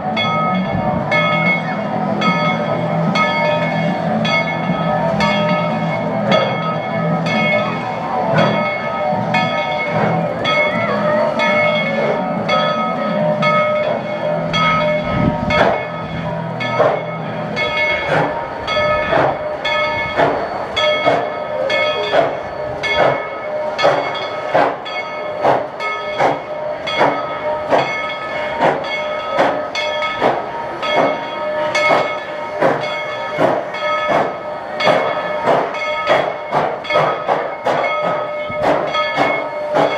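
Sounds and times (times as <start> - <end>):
locomotive bell ringing: 0.0 - 39.9
steam locomotive chuffing: 0.0 - 39.9.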